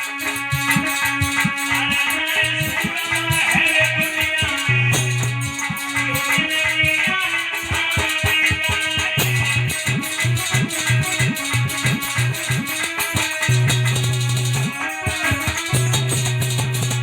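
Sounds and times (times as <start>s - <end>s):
quick steady beat: 0.0s - 17.0s
plucked electric guitar lead: 9.0s - 17.0s.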